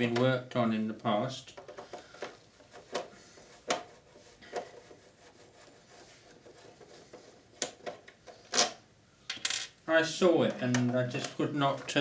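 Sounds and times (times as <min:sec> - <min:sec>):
faint rubbing: 0:02.5 - 0:07.5.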